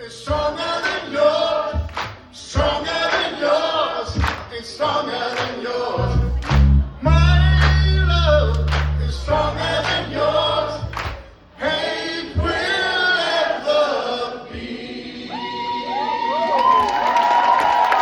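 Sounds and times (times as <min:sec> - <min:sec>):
pop-rock choir singing: 0:00.0 - 0:06.7, 0:09.1 - 0:16.1.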